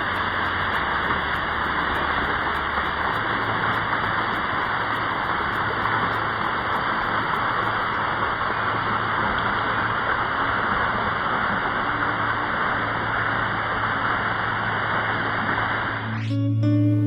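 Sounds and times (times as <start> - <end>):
guitar music: 16.0 - 17.0.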